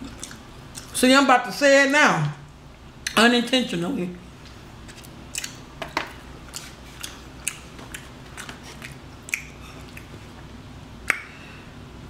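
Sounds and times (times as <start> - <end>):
chewing and lip smacking: 0.0 - 1.0, 4.4 - 10.5.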